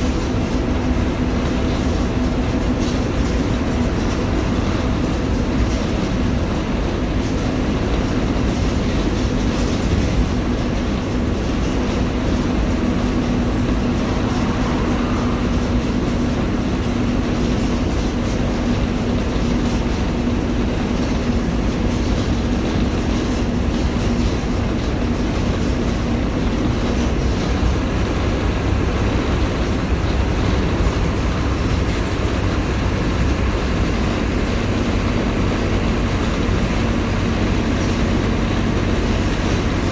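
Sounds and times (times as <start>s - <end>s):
bus body rattle: 0.0s - 39.9s
bus engine running: 0.0s - 39.9s
road noise: 0.0s - 39.9s.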